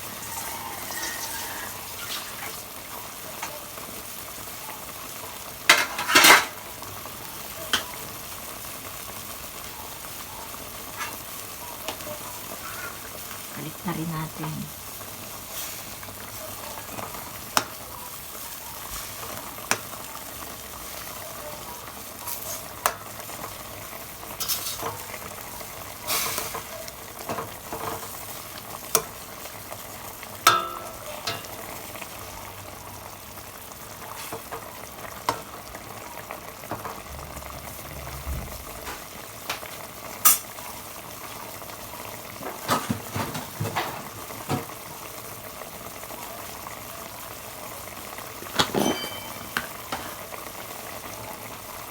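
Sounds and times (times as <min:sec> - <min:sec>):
food sizzling in a pan: 0:00.0 - 0:51.9
spoon knocking against pan: 0:30.4 - 0:31.6, 0:48.5 - 0:50.2.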